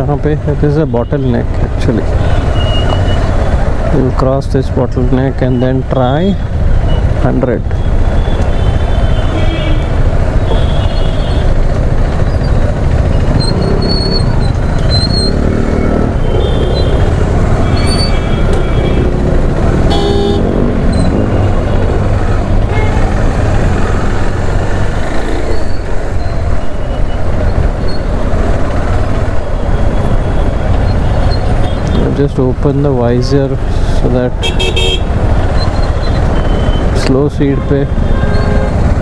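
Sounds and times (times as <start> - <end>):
traffic engines and road noise: 0.0 - 39.0
vehicle horn toots: 8.2 - 11.5, 19.9 - 20.5, 34.4 - 35.1
loud sharp horn blast: 19.9 - 20.6, 34.4 - 35.1.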